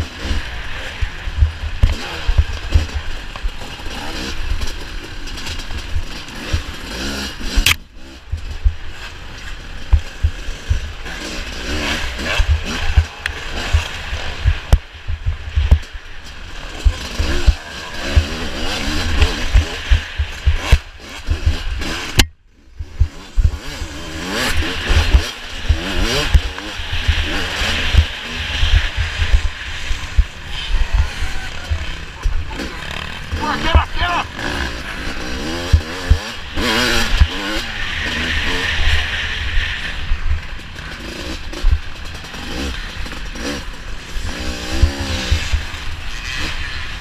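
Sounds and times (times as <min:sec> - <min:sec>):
motorcycle engine revving: 0:00.0 - 0:47.0
wind buffeting microphone: 0:12.4 - 0:16.0, 0:24.9 - 0:32.6.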